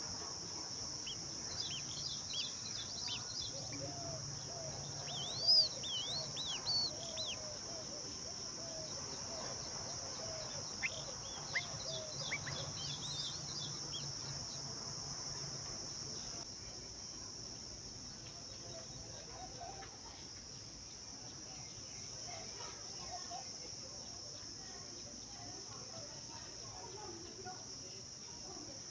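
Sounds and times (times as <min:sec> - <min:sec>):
high-pitched insect drone: 0:00.9 - 0:08.9, 0:10.2 - 0:15.5
low repeated bird call: 0:01.0 - 0:14.3
bird chirps: 0:01.0 - 0:14.6.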